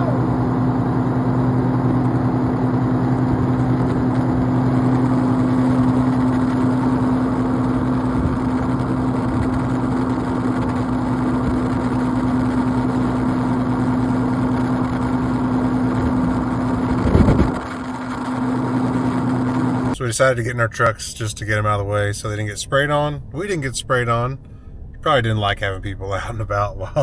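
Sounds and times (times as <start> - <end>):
vehicle engine idling: 0.0 - 20.1.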